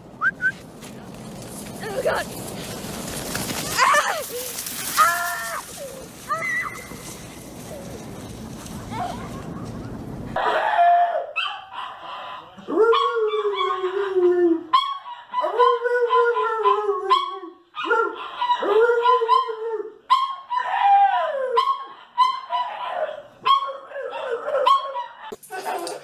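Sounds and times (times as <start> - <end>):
dog yelping: 16.1 - 25.4.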